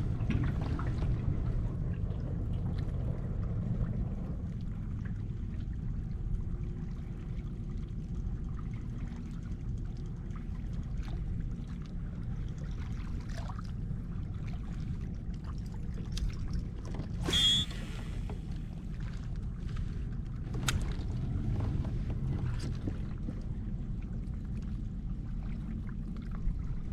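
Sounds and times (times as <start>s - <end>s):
low rumble: 0.0s - 26.9s
water sloshing around kayak: 0.0s - 26.9s
sharp loud sound: 17.2s - 18.2s.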